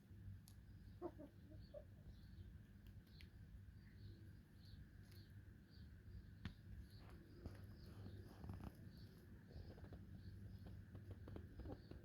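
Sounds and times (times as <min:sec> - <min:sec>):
hens clucking softly: 0:00.9 - 0:02.1.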